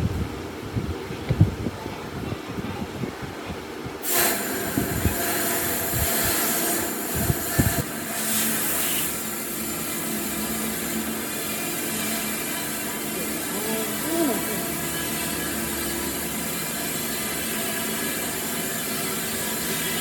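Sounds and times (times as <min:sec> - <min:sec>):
electric power tool running: 0:04.0 - 0:20.0.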